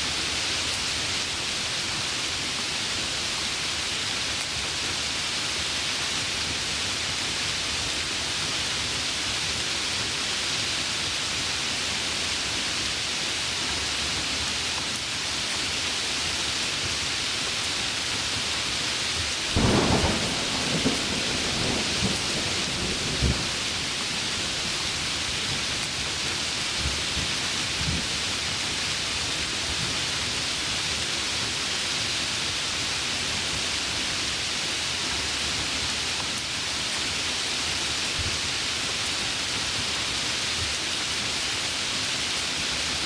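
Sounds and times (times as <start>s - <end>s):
heavy rain: 0.0s - 43.0s
thunderclap rumbling: 19.6s - 24.7s.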